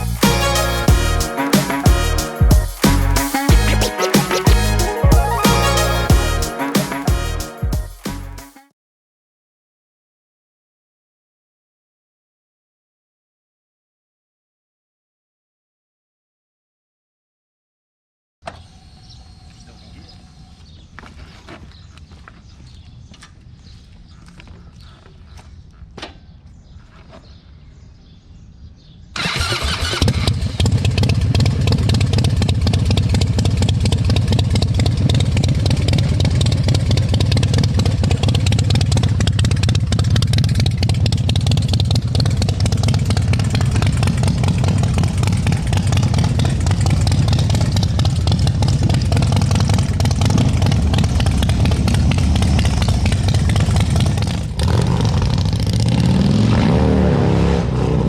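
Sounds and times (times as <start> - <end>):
motorcycle engine starting and running: 0.0 - 1.2, 29.2 - 58.0.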